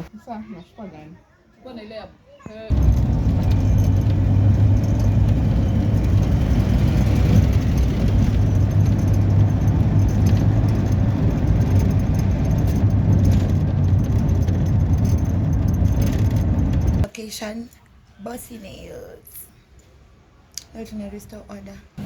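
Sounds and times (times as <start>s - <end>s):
vehicle rumbling on road: 2.7s - 17.1s.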